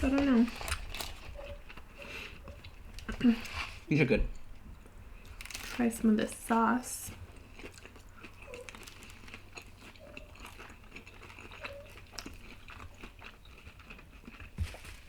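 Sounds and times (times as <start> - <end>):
chewing: 0.0 - 3.9, 6.9 - 15.0.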